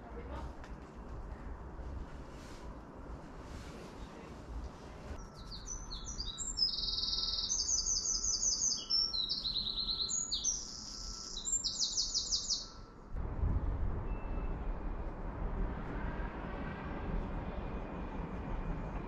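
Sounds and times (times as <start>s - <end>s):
songbird singing trills: 5.2s - 12.9s
low rumble: 13.1s - 19.0s.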